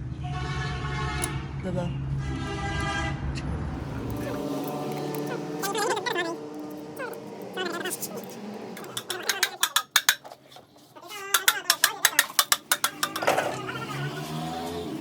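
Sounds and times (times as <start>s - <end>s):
metal tools tapping engine parts: 4.0s - 13.7s.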